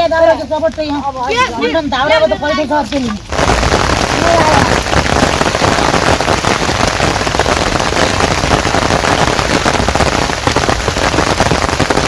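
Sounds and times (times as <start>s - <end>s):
heavy rain falling: 3.1s - 12.0s.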